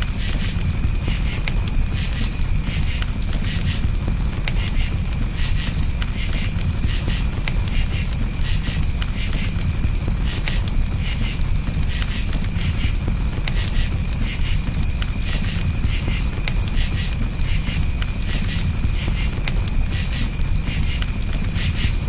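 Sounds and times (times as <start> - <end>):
campfire burning and crackling: 0.0 - 22.0
crickets chirping: 0.0 - 22.0.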